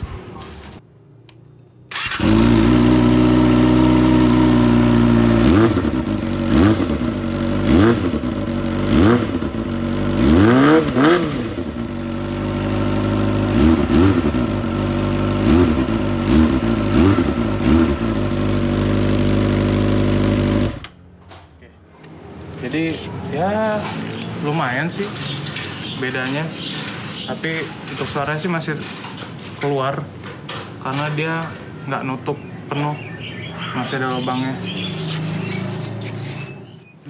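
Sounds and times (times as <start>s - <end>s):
motorcycle engine idling: 1.9s - 20.9s
quick throttle revs: 1.9s - 20.9s.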